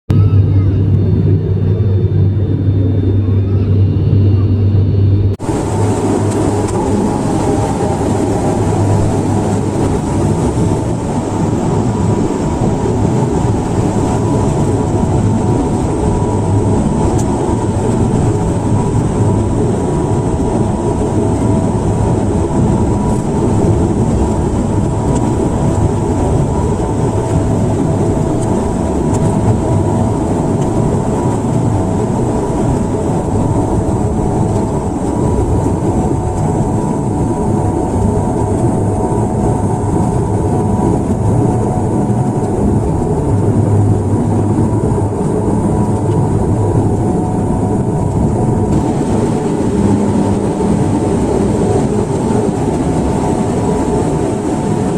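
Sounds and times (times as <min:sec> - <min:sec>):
airliner engines and airflow rumble: 0:00.1 - 0:54.9
steady tones: 0:00.2 - 0:35.7.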